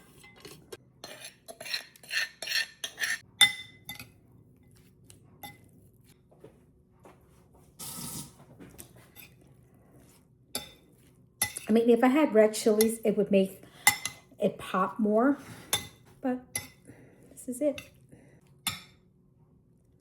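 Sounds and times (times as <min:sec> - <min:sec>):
utensil scraping a bowl: 0:00.0 - 0:03.3
utensils clinking against a bowl: 0:00.0 - 0:04.2, 0:11.4 - 0:11.8, 0:15.6 - 0:16.9.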